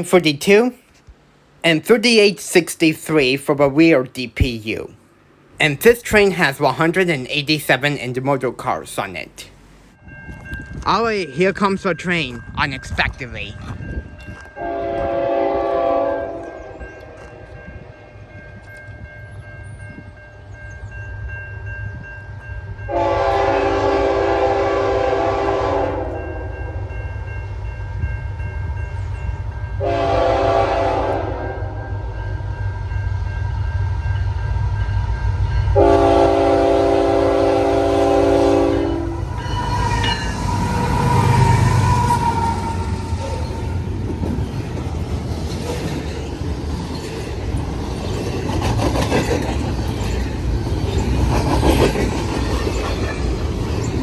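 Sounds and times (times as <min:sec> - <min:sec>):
train diesel rumble: 0:00.0 - 0:54.0
crossing bell ringing: 0:05.6 - 0:23.8, 0:25.8 - 0:44.8
locomotive air horn: 0:14.6 - 0:17.4, 0:22.9 - 0:26.5, 0:29.8 - 0:32.0, 0:35.8 - 0:43.4.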